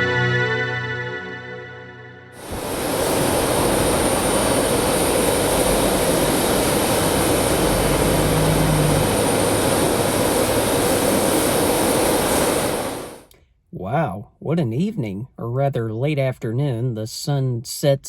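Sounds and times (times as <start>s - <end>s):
high engine whine: 2.3s - 13.3s
jet engines running: 2.4s - 13.3s.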